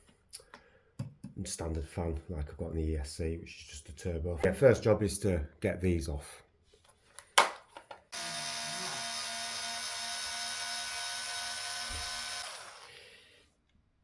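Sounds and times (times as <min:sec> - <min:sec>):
electric screwdriver whining: 0:08.2 - 0:13.2.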